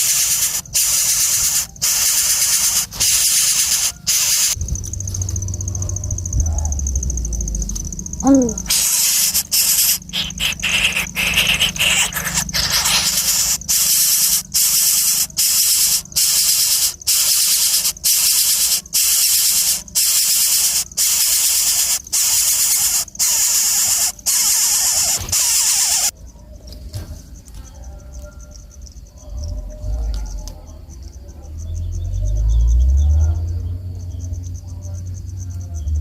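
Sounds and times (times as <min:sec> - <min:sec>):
harsh insect buzz: 0:00.0 - 0:05.6, 0:07.2 - 0:26.2.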